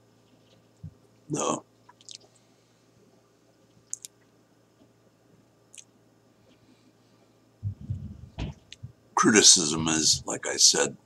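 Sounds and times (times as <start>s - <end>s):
wet mouth clicks and smacks: 1.9s - 2.3s, 3.9s - 4.2s, 5.7s - 5.9s
low muffled bumps: 7.6s - 9.0s.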